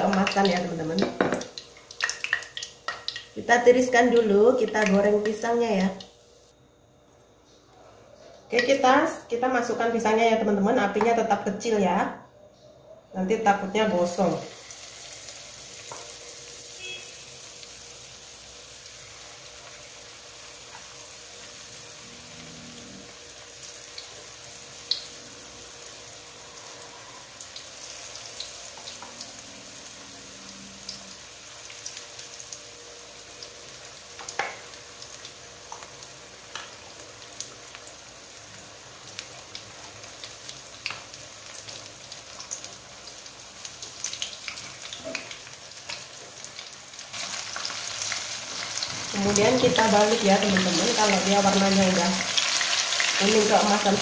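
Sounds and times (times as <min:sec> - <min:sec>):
oil popping and crackling: 0:00.0 - 0:03.4, 0:33.8 - 0:38.0, 0:39.0 - 0:54.0
food sizzling in hot oil: 0:00.0 - 0:06.5, 0:13.9 - 0:54.0.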